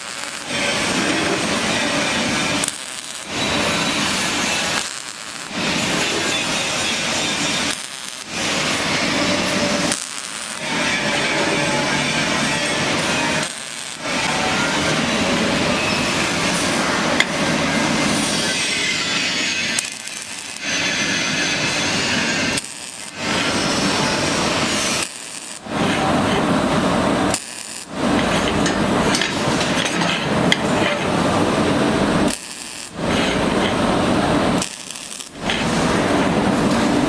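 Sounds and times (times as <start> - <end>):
welding arc crackling: 0.0 - 37.0.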